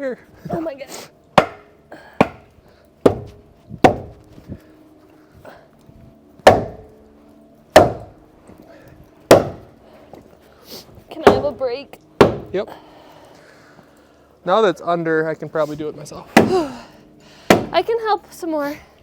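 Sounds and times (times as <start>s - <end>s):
hard knocks with ringing: 1.4s - 2.5s, 3.1s - 4.2s, 6.4s - 6.8s, 7.8s - 8.1s, 9.3s - 9.7s.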